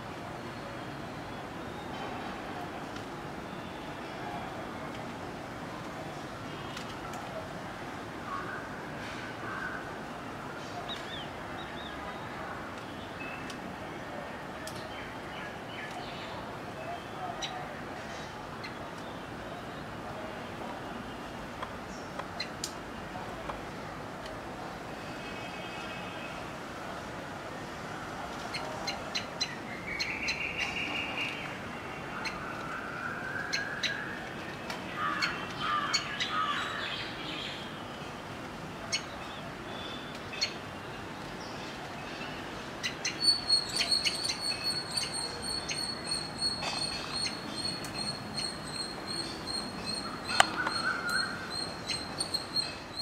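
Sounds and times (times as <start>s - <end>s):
birds chirping: 28.5s - 53.0s.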